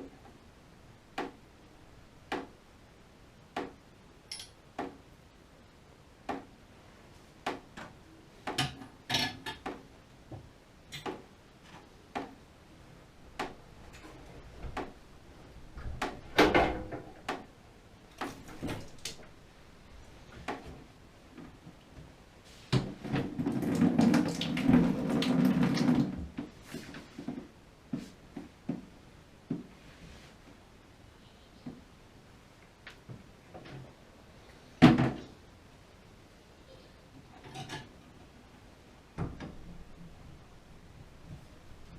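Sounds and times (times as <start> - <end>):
tools clicking and knocking: 4.3 - 4.9.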